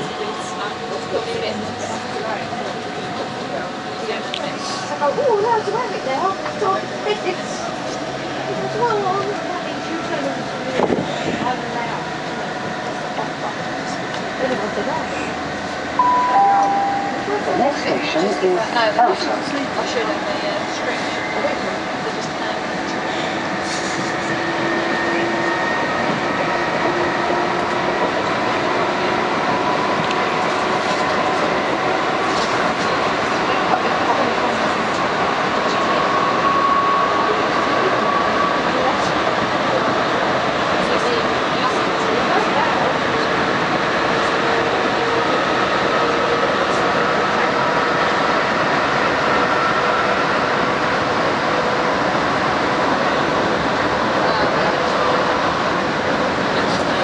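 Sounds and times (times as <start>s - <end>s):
train wheels rumbling on track: 0.0s - 16.0s, 17.1s - 57.0s.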